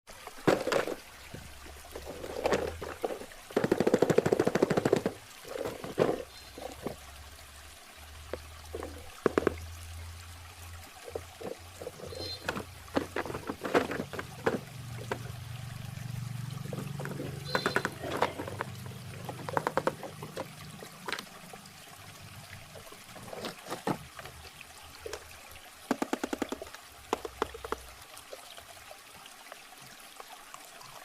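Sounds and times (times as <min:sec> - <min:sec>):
clicks and splashes: 0:00.1 - 0:10.1, 0:10.8 - 0:28.7
water trickling and pouring: 0:00.1 - 0:31.0.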